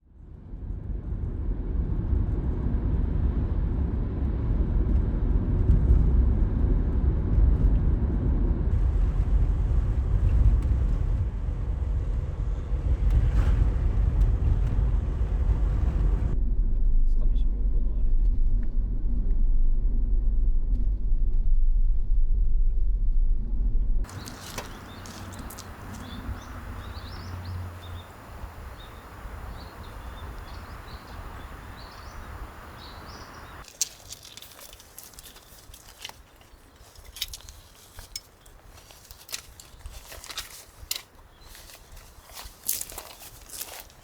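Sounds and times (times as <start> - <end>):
deep vehicle rumble: 0.2 - 44.0
steady hiss: 24.1 - 41.0
small birds chirping: 24.1 - 44.0.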